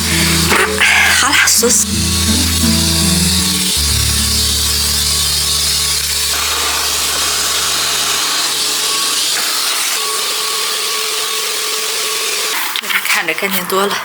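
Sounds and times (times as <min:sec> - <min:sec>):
vacuum cleaner running: 0:00.0 - 0:12.8.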